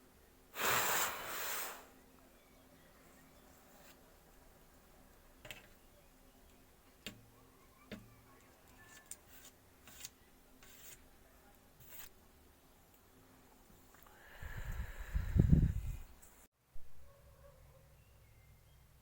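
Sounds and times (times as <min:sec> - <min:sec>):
light rubbing: 0:07.9 - 0:11.1.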